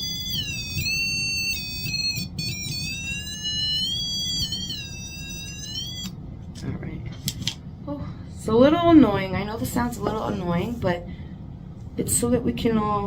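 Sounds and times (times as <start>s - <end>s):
high-pitched wavering electronic tone: 0.0s - 6.2s.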